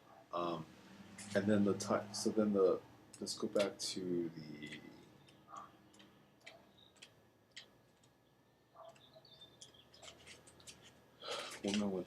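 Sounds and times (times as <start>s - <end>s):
cards tapping and rustling: 9.6s - 12.0s.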